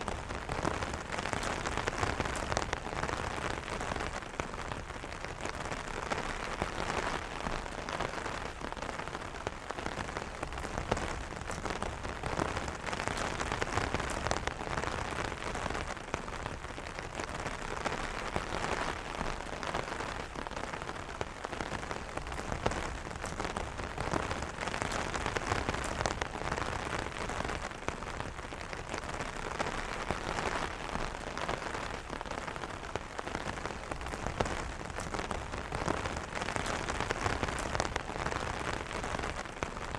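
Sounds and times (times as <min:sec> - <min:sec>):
rain pattering on an umbrella: 0:00.0 - 0:39.9.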